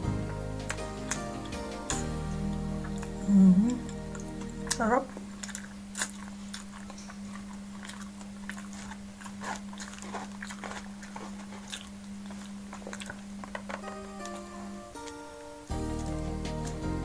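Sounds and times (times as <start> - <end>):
soft background music: 0.0 - 5.3, 13.7 - 17.0
steady low hum: 0.0 - 17.0
wet chewing and lip smacks: 3.8 - 15.2.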